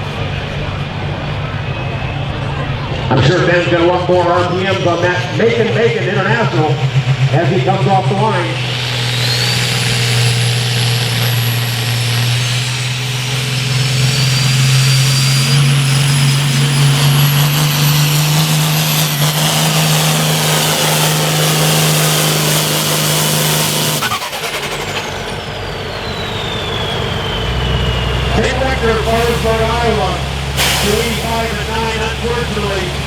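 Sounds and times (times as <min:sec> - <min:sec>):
high whine: 0:00.0 - 0:33.0
tractor diesel engine at full throttle: 0:00.0 - 0:33.0.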